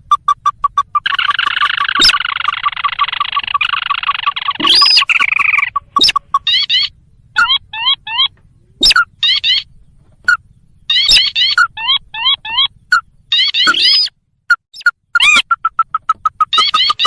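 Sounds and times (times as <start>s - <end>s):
dense churring bird call: 0.0s - 17.0s
rapid run of short bird notes: 0.0s - 17.0s.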